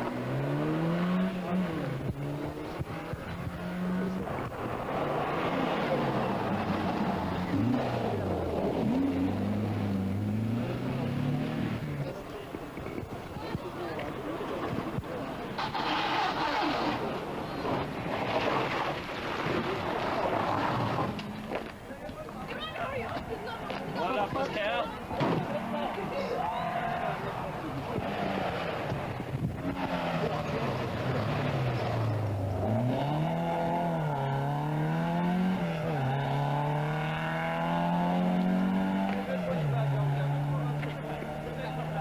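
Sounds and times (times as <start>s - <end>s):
rally car engine: 0.0s - 22.7s, 23.4s - 42.0s
wind noise on microphone: 28.9s - 29.8s.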